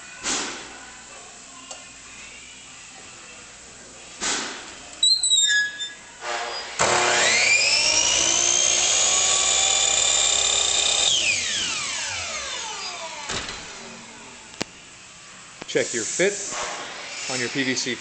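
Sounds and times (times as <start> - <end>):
miter saw whining: 6.7 - 14.2.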